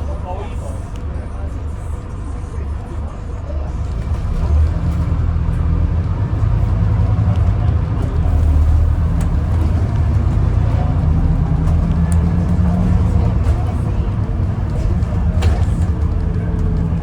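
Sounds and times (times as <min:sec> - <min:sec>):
bus diesel engine running: 0:00.0 - 0:17.0.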